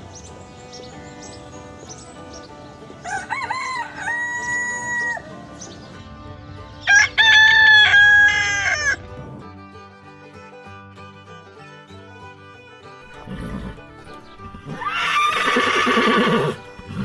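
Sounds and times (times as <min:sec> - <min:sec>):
soft background music: 0:00.0 - 0:17.0
rooster crowing: 0:03.0 - 0:05.3, 0:13.1 - 0:17.0.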